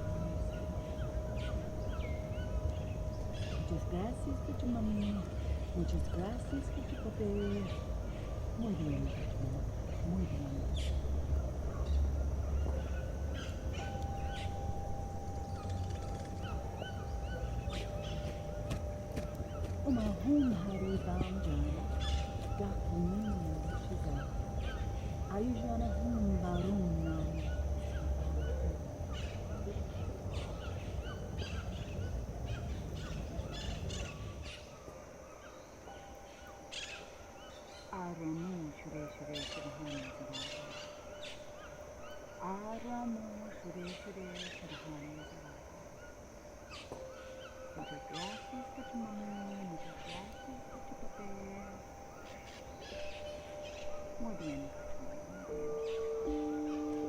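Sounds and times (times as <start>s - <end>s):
low outdoor rumble: 0.0s - 35.3s
faint steady high tone: 0.0s - 57.0s
small birds chirping: 0.0s - 57.0s
thin steady hum: 0.0s - 57.0s.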